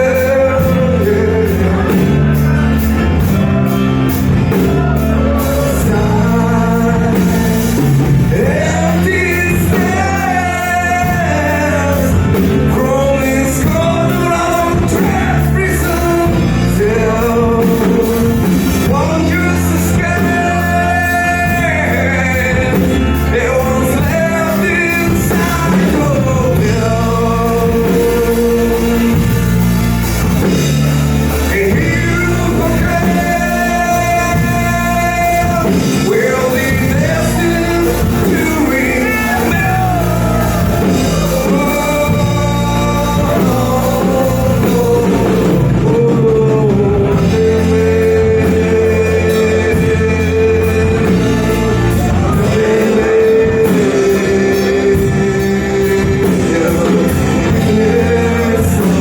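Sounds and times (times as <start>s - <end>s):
lead singer singing: 0.0s - 59.0s
rock band playing live: 0.0s - 59.0s.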